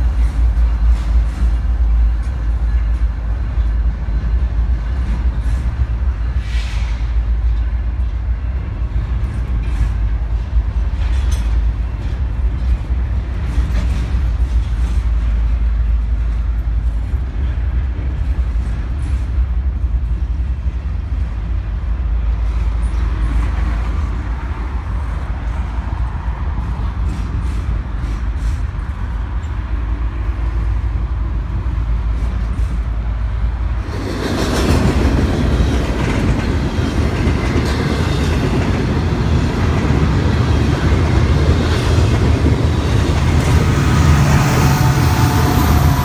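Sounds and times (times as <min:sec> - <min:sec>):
freight train rumbling past: 0:00.0 - 0:46.0
railcars clanking: 0:00.0 - 0:46.0.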